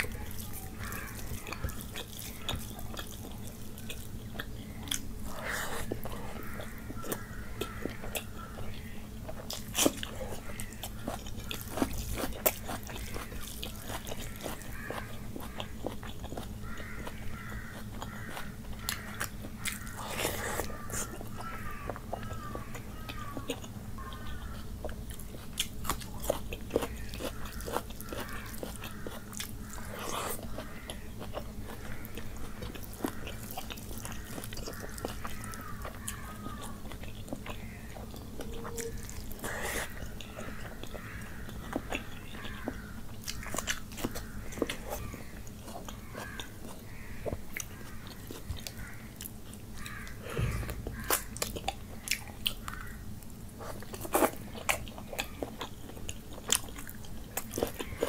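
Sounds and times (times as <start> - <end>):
wet chewing mouth sounds: 0.0 - 52.9, 53.5 - 58.0
raw onion crunching: 0.0 - 58.0
low hum: 48.9 - 53.6.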